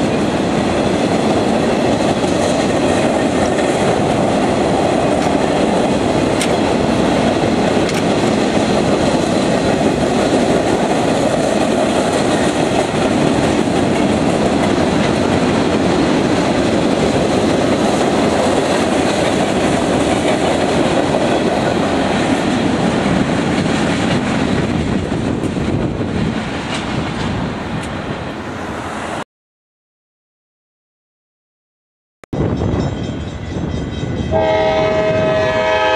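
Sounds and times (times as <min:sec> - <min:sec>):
wheels clacking over rail joints: 0:00.0 - 0:28.2
freight train cars rolling past: 0:00.0 - 0:29.2, 0:32.4 - 0:35.9.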